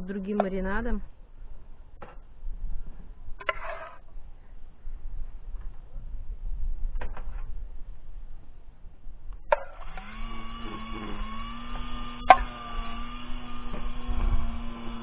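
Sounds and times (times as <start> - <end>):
sharp clicks: 9.3 - 15.0
small motor humming: 9.4 - 15.0.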